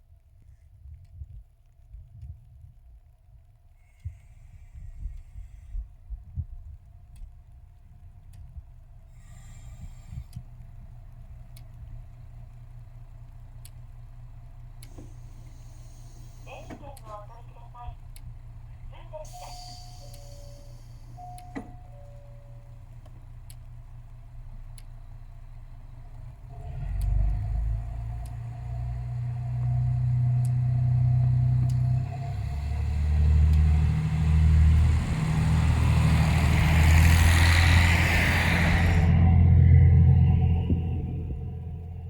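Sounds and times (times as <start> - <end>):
diesel railcar engine: 3.0 - 42.0
hissing rush: 32.3 - 41.9.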